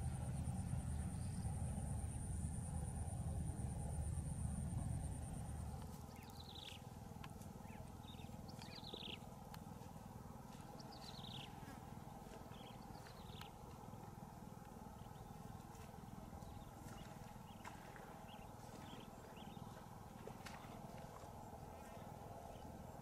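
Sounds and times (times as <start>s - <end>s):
steady low rumble: 0.0s - 23.0s
faint bird calls: 5.7s - 9.3s.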